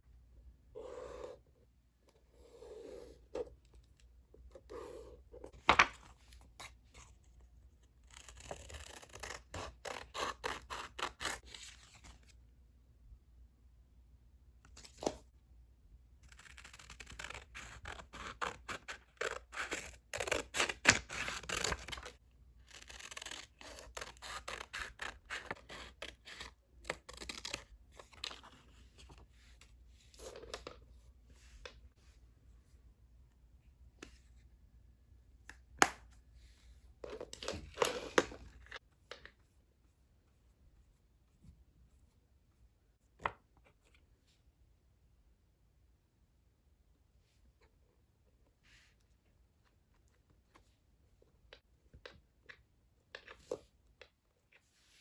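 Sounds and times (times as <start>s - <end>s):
scissors snipping paper: 16.3s - 22.1s, 22.7s - 27.7s.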